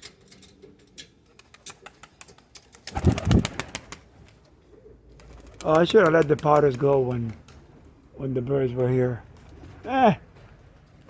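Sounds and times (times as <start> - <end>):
wings flapping: 1.2 - 4.5, 5.1 - 7.9
pigeons cooing: 1.4 - 8.3.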